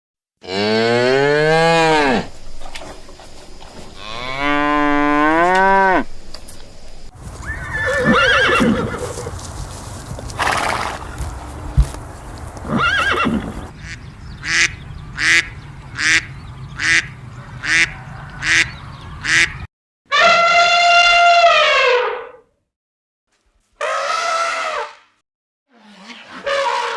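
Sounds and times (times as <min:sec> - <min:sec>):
cow mooing: 0:00.4 - 0:02.7, 0:03.9 - 0:06.3
horse neighing: 0:00.5 - 0:03.0, 0:03.8 - 0:06.2, 0:07.3 - 0:09.5, 0:10.2 - 0:11.6, 0:12.6 - 0:13.7
duck quacks: 0:13.8 - 0:19.7.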